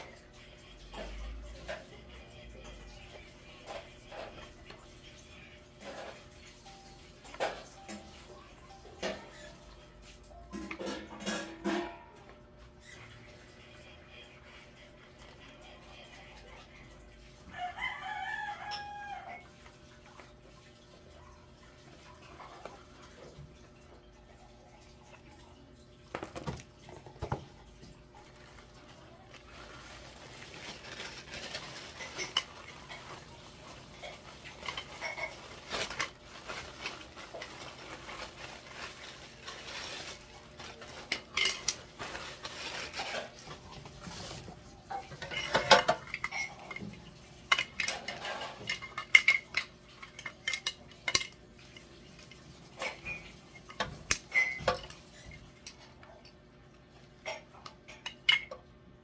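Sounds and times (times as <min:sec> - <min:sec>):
hard items clinking and rattling: 0:05.7 - 0:09.6, 0:26.1 - 0:56.1.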